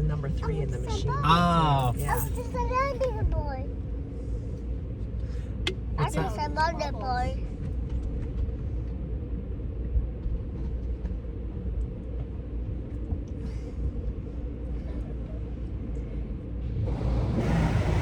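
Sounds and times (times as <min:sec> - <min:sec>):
car wash rumble: 0:04.2 - 0:18.0.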